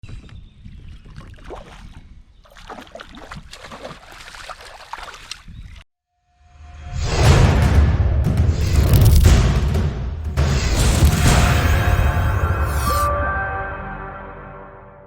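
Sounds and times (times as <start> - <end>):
wind on microphone: 0.0 - 2.4
water splashing against a kayak: 0.9 - 5.8
music: 6.2 - 15.0.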